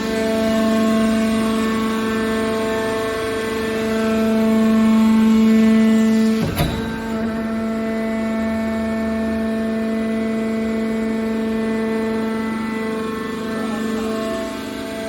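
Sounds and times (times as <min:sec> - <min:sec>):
hydraulic power unit humming: 0:02.0 - 0:15.0
machine clunk: 0:06.2 - 0:08.5.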